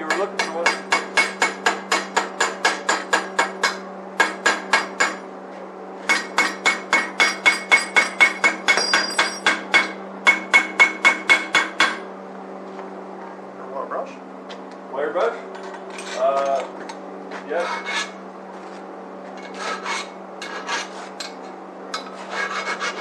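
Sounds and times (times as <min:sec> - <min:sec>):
hammer chipping metal: 0:00.0 - 0:05.2, 0:06.1 - 0:12.0.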